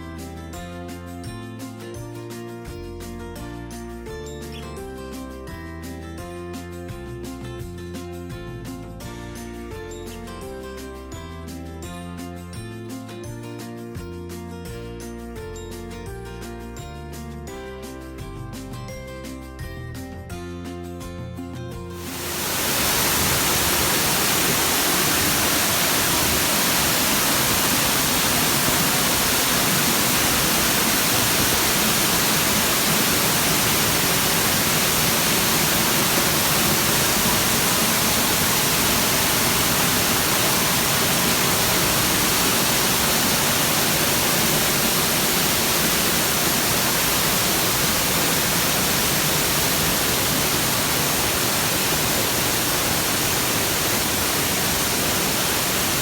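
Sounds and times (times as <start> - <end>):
waterfall pouring: 22.0 - 56.0.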